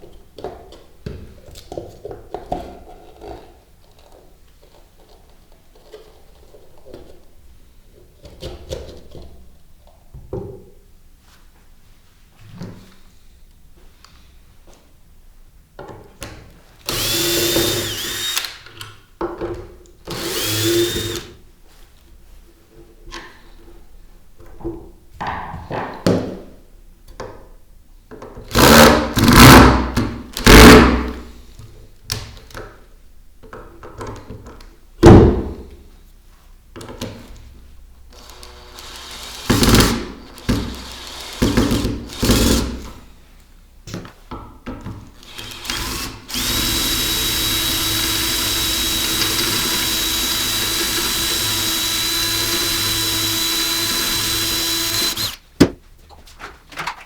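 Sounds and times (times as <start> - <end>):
electric power tool whining: 16.9 - 18.6, 20.1 - 21.3, 38.2 - 41.5, 45.2 - 55.8.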